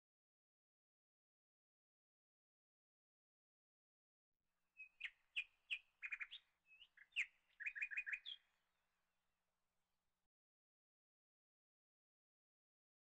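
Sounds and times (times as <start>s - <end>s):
bird chirping and trilling: 4.8s - 8.5s.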